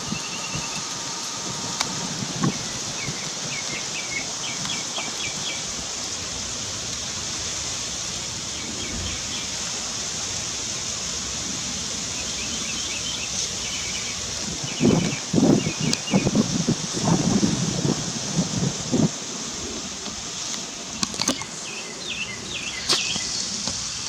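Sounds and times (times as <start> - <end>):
bird chirping trills: 0.0 - 6.1, 12.2 - 17.3
steady high hiss: 0.0 - 24.0.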